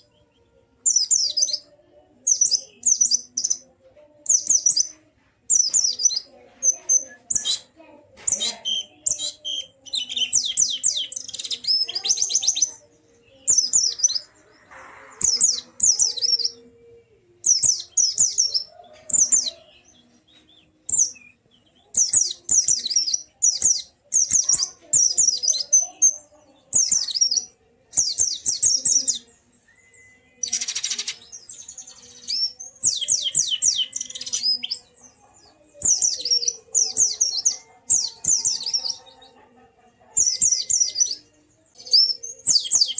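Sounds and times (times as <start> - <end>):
bird rapid high chirping: 0.8 - 3.6, 4.2 - 16.6, 17.4 - 39.5, 40.1 - 42.9.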